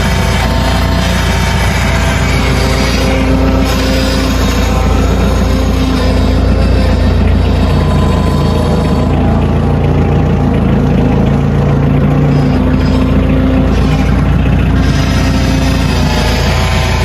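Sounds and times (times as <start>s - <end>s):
heavy equipment engine running: 0.0s - 17.0s.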